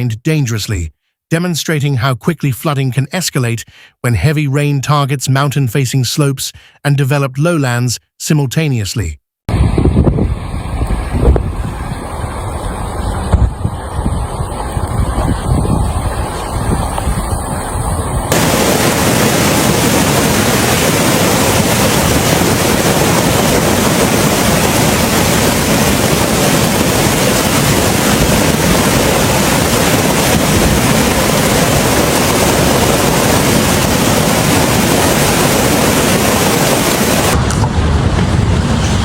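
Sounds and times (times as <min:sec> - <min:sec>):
water rushing: 0:09.5 - 0:39.0.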